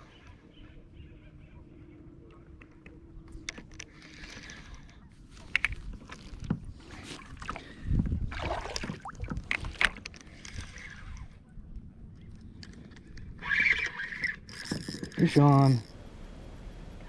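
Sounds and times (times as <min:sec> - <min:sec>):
wind rumble on microphone: 0:05.3 - 0:13.7
water knocking around kayak: 0:08.3 - 0:09.6.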